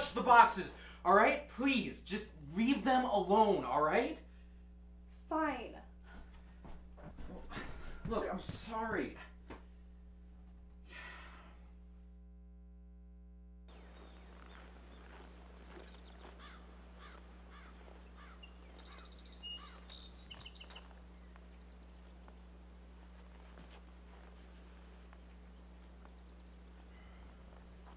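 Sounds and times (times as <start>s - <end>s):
low steady hum: 0.0s - 27.9s
small birds chirping: 13.7s - 27.9s.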